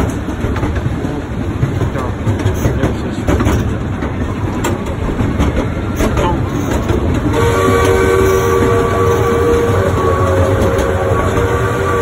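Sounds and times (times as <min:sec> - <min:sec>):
train car rumbling on track: 0:00.0 - 0:12.0.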